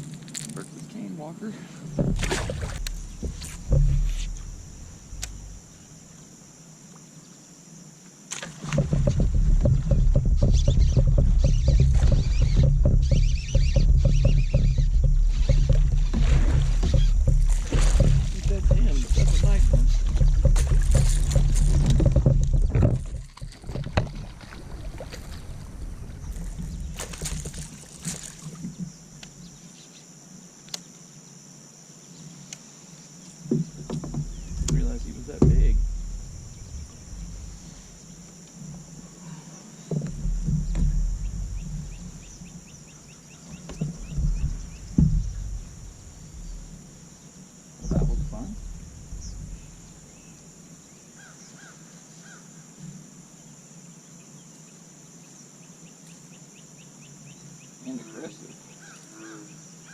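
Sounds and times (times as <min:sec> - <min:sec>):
knocks and rustling of gear: 0:08.7 - 0:25.4, 0:26.3 - 0:28.9.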